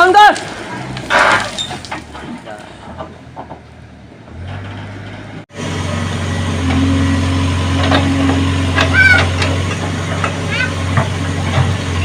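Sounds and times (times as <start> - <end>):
excavator diesel engine running: 0.5 - 12.0.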